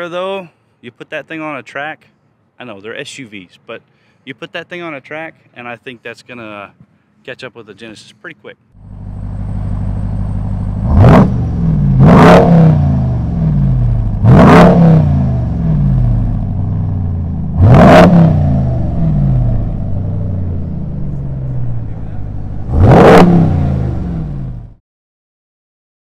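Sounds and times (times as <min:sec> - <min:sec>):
car engine revving: 0:08.8 - 0:24.8.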